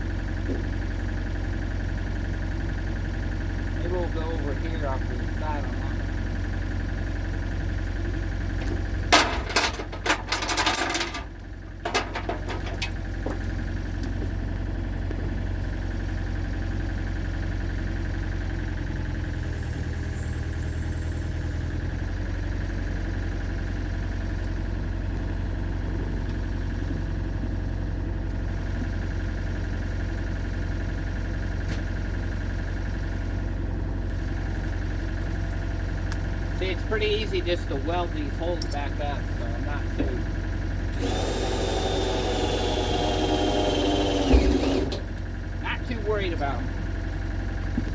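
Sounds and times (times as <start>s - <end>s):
excavator engine idling: 0.0s - 47.9s
metal clanks and rattles: 8.5s - 14.4s.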